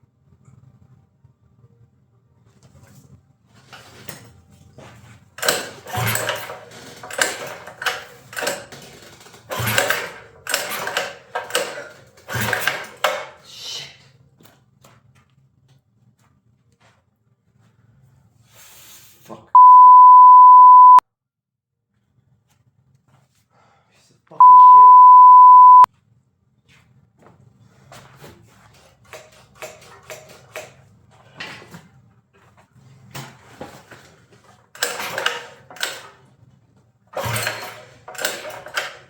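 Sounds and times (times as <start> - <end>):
clattering and scraping: 3.6 - 13.4
censor bleep tone: 19.6 - 21.0, 24.4 - 25.9.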